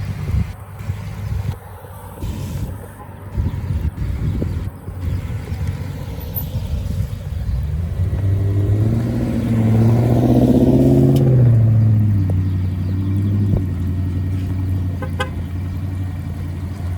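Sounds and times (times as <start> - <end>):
car driving past: 5.9 - 16.9.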